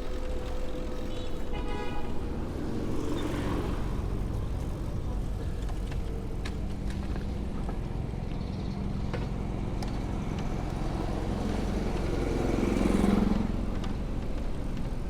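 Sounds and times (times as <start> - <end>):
steady low traffic rumble: 0.0 - 15.0
vehicle passing close by: 2.3 - 4.7.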